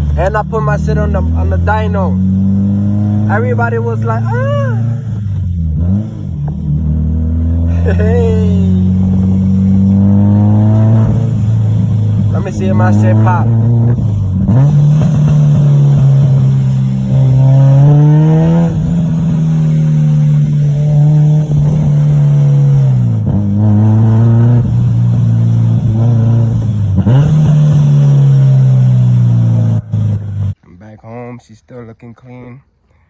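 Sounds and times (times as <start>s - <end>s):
car engine accelerating hard: 0.0s - 30.6s.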